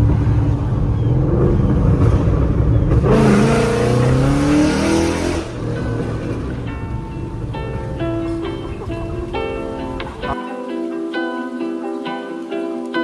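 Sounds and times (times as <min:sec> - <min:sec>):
car engine revving: 0:00.0 - 0:10.4.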